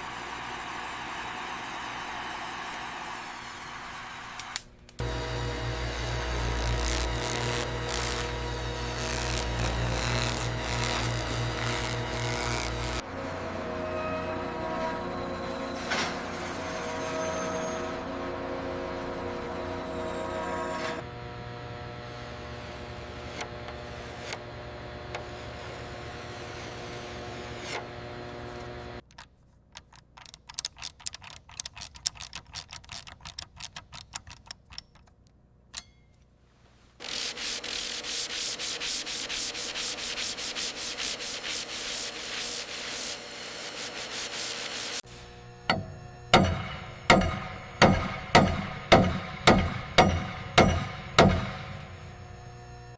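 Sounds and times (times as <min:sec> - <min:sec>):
machine hum: 0:00.0 - 0:16.0, 0:38.4 - 0:52.9
rapid rubbing strokes: 0:37.0 - 0:45.0.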